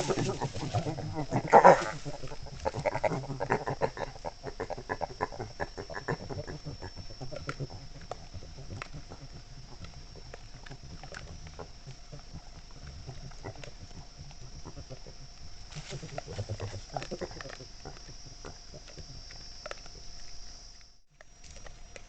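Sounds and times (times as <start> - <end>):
animal short calls: 0.0 - 9.8.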